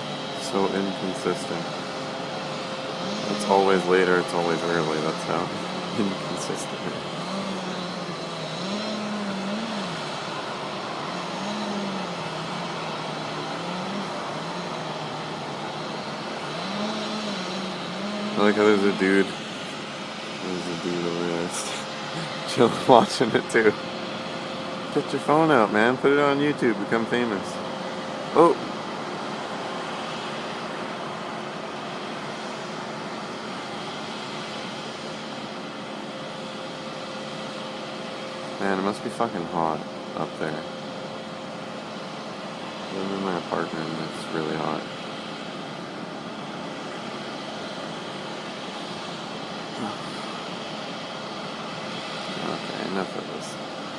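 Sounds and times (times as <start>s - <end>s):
chainsaw revving: 2.9s - 23.5s.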